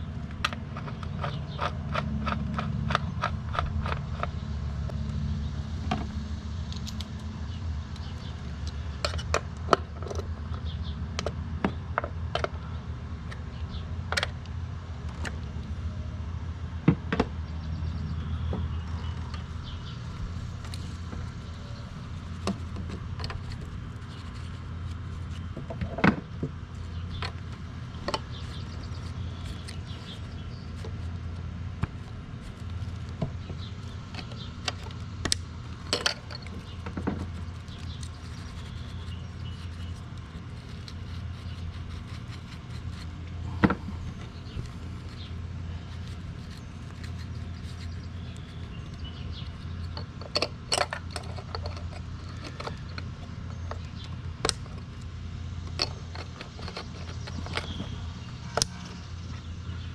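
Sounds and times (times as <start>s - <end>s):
steady low hum: 0.0s - 59.9s
tools and bottles clicking: 34.1s - 40.0s, 48.9s - 54.8s, 55.6s - 58.0s.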